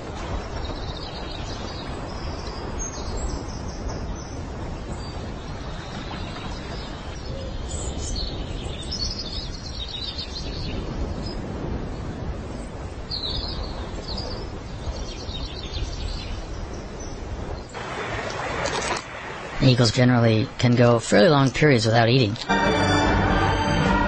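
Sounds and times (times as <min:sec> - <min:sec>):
low rumbling outdoor noise: 0:00.0 - 0:13.2
birds chirping: 0:00.4 - 0:11.4.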